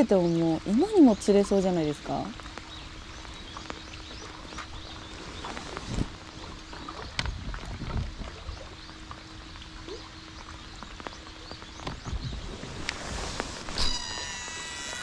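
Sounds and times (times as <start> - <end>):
faint steady hum: 0.0 - 15.0
light rain on lake surface: 0.0 - 15.0
small ticks and knocks: 2.4 - 4.7, 7.0 - 8.1, 10.4 - 12.2.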